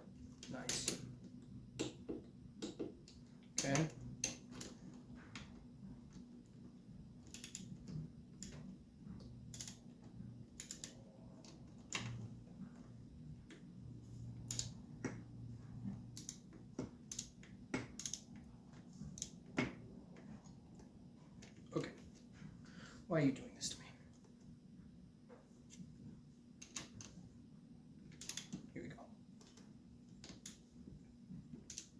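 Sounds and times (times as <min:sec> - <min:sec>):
low steady hum: 0:00.0 - 0:31.9
metallic clicks of hand tools: 0:07.3 - 0:07.8, 0:09.5 - 0:09.8, 0:10.6 - 0:11.0, 0:14.5 - 0:14.8, 0:17.1 - 0:18.3, 0:28.2 - 0:28.6.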